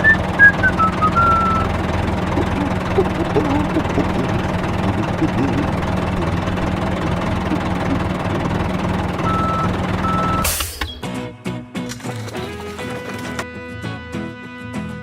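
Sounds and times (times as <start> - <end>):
reversing beeps: 0.0 - 1.7, 9.2 - 11.0
heavy vehicle engine running: 0.0 - 11.2, 11.8 - 13.5
music: 10.8 - 15.0.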